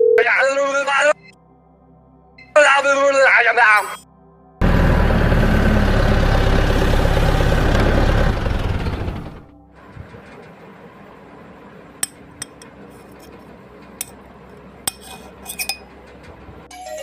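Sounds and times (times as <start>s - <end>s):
music: 0.2s - 4.6s, 9.1s - 17.0s
small motor stopping: 4.6s - 10.8s.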